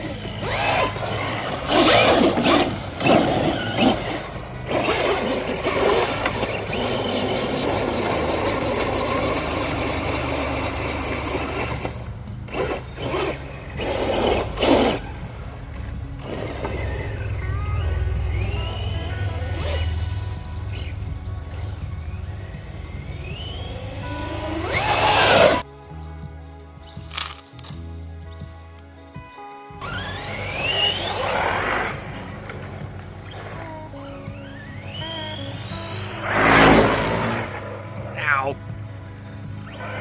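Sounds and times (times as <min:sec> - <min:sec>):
rc truck motor whine: 0:00.0 - 0:25.7, 0:26.9 - 0:27.9, 0:29.8 - 0:40.0
tires throwing dirt: 0:00.0 - 0:25.7, 0:29.8 - 0:40.0
background music: 0:00.0 - 0:40.0.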